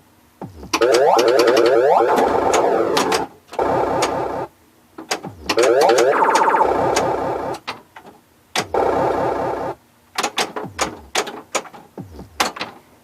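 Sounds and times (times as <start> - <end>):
warbling electronic sound effects: 0.5 - 4.5, 5.5 - 7.6
pinball mechanisms clacking: 0.8 - 7.8, 8.6 - 11.8.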